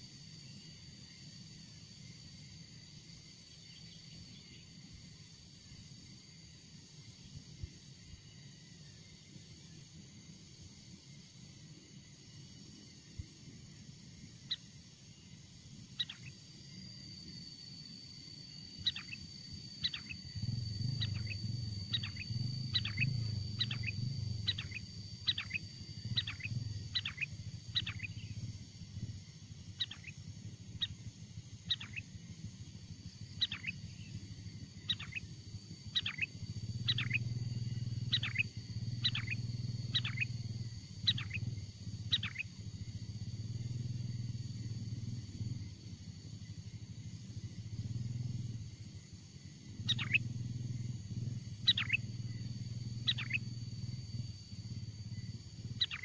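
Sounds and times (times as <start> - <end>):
steady high whine: 15.0 - 56.0
bird calling sharp notes: 19.8 - 28.4, 38.0 - 40.4, 49.9 - 50.3, 51.6 - 52.1, 53.0 - 53.4, 55.8 - 56.0
low rumble: 19.8 - 34.9.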